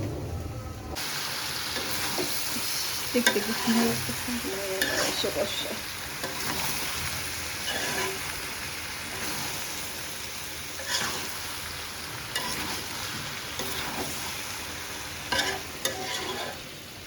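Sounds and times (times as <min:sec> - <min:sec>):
chicken sizzling in a pan: 0:01.0 - 0:17.0
spatula scraping and knocking pan: 0:01.8 - 0:08.4, 0:10.8 - 0:11.3, 0:12.3 - 0:14.3, 0:15.2 - 0:16.7.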